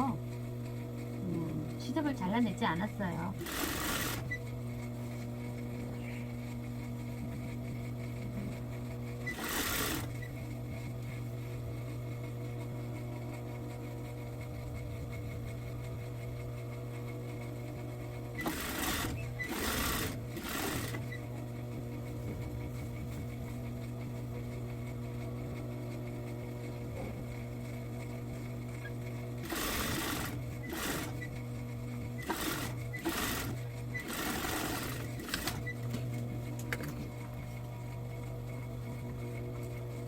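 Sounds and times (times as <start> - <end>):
sewing machine running: 1.8 - 4.8, 9.2 - 10.6, 18.3 - 21.4, 29.2 - 36.0.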